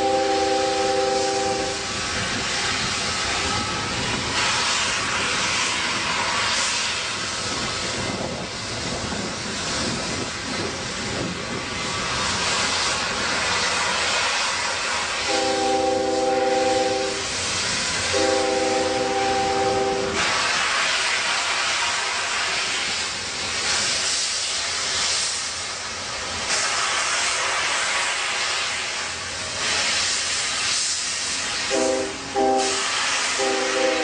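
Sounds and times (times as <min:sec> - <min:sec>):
locomotive whistle chord: 0:00.0 - 0:01.8, 0:15.3 - 0:17.3, 0:18.1 - 0:20.2, 0:31.7 - 0:34.0
rushing hiss of moving train: 0:00.0 - 0:34.0.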